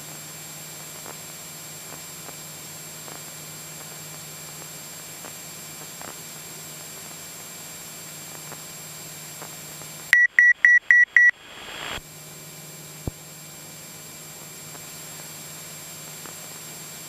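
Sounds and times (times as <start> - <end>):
high-pitched electronic beeps: 10.2 - 12.0
short burst of hiss: 11.4 - 12.0.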